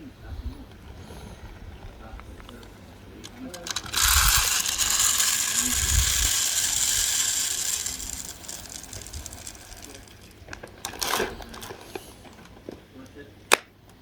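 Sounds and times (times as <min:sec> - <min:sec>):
short clatter: 0:03.2 - 0:12.5
bird seed pouring into feeder: 0:03.4 - 0:11.6.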